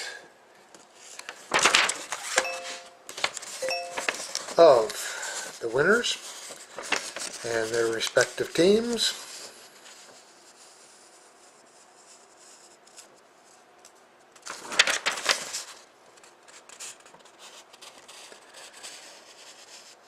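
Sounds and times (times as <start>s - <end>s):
paper rustling: 1.0s - 10.3s, 14.4s - 19.9s.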